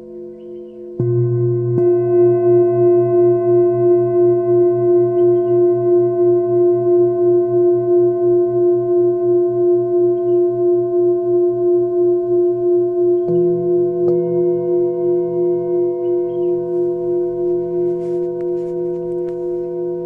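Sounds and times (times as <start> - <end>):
bowl struck: 0.0 - 20.0
singing bowls humming: 0.0 - 20.0
faint bird chirps: 0.1 - 1.0, 5.1 - 5.7, 10.0 - 10.8, 12.3 - 14.3, 15.8 - 18.0.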